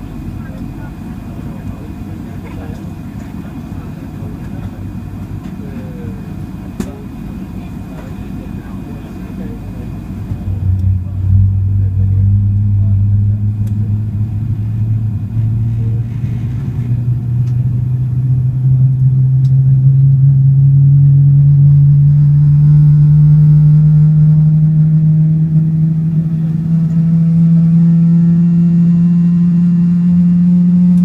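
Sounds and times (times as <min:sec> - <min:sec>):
jet engines spooling up: 0:00.0 - 0:20.8
high engine whine: 0:00.0 - 0:31.0.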